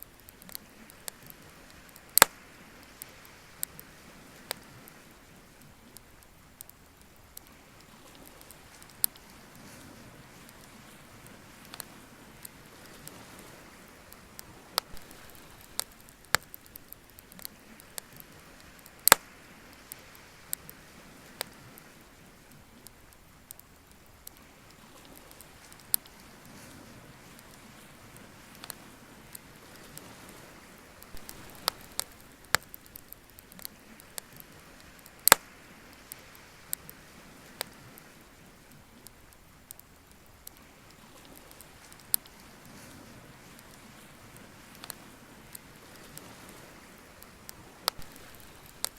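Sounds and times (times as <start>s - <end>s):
bonfire crackling: 0.0s - 48.9s
faint steady hiss: 0.0s - 48.9s.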